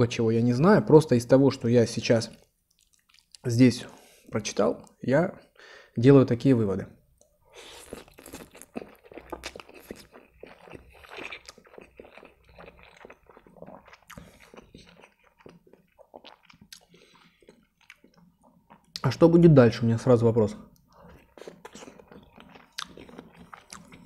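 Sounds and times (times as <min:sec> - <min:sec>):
mouth clicks and smacks: 0:02.3 - 0:03.5, 0:07.2 - 0:19.1, 0:20.7 - 0:24.0
man chewing food: 0:02.4 - 0:03.4, 0:07.5 - 0:19.0, 0:20.7 - 0:24.0.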